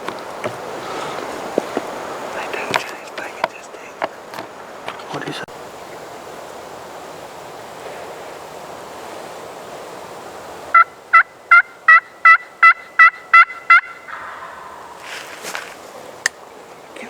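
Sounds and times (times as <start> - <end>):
turkey yelps: 10.8 - 15.7.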